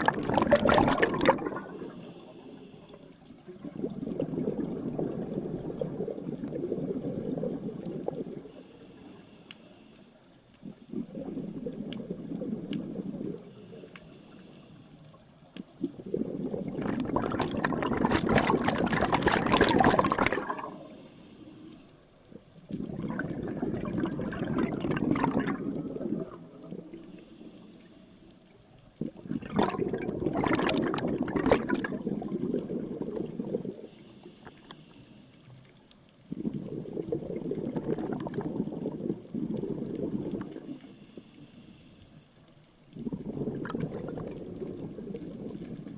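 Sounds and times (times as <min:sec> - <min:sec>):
diver's exhaled bubbles gurgling: 0:00.0 - 0:02.5, 0:03.3 - 0:08.6, 0:10.6 - 0:13.6, 0:15.4 - 0:21.1, 0:22.3 - 0:27.1, 0:28.8 - 0:34.6, 0:36.2 - 0:40.9, 0:42.8 - 0:45.9.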